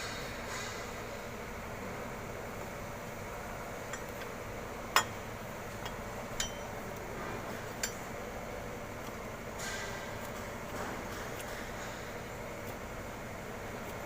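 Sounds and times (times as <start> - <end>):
metal tools clinking: 5.8 - 6.7.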